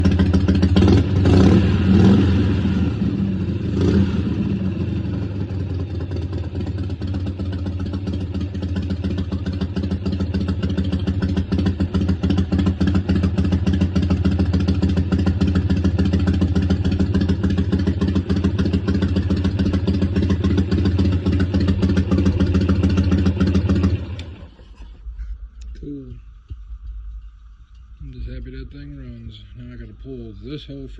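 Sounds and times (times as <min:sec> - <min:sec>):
motorcycle engine revving: 0:00.0 - 0:25.0
motorcycle engine idling: 0:00.0 - 0:30.9.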